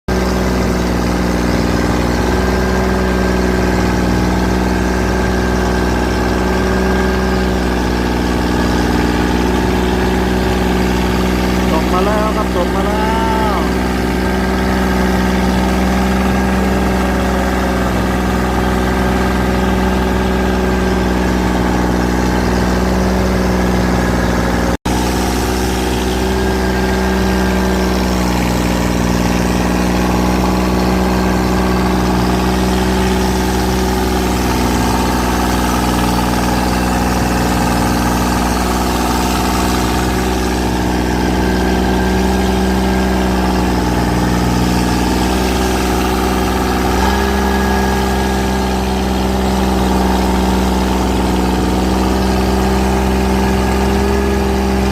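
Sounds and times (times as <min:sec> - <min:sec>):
boat engine running: 0:00.0 - 0:54.9.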